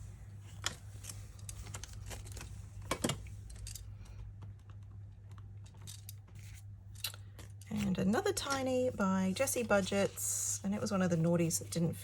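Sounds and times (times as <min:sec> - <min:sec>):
banknotes and paper rustling: 0:00.4 - 0:03.8.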